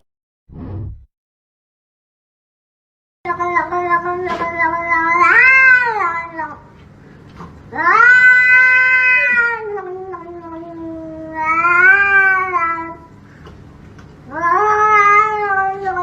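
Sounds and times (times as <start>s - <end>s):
cat yowling: 3.3s - 6.6s, 7.7s - 13.0s, 14.3s - 16.0s.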